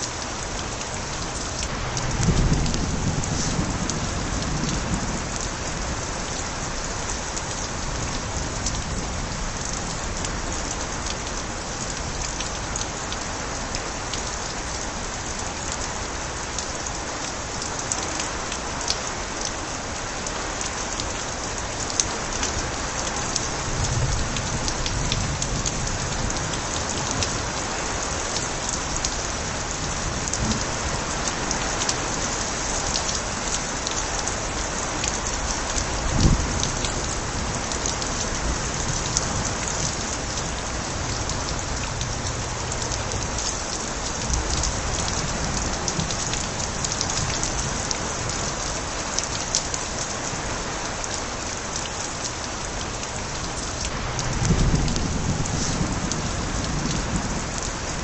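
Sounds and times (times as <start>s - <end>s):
heavy rain: 0.0s - 58.0s
water drips and splashes: 0.0s - 58.0s
water spilling from gutters: 0.0s - 58.0s.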